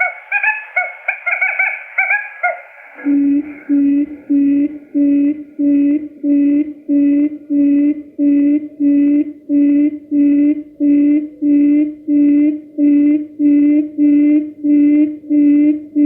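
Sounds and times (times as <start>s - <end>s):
quail lure call hooting: 0.0s - 5.6s.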